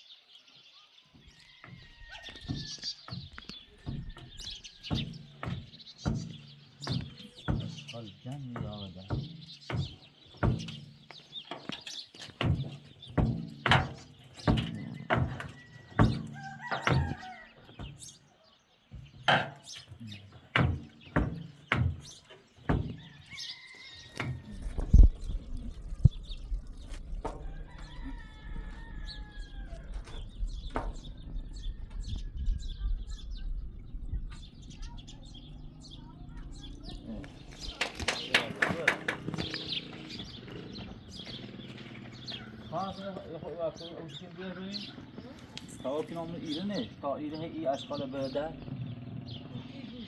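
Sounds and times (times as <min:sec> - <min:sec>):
rooster crowing: 0:01.2 - 0:03.1, 0:14.7 - 0:17.8, 0:22.9 - 0:24.9, 0:27.3 - 0:32.9
sharp heavy knocks: 0:02.5 - 0:11.1, 0:12.4 - 0:17.2, 0:20.4 - 0:23.1
low steady rumble: 0:24.4 - 0:37.8.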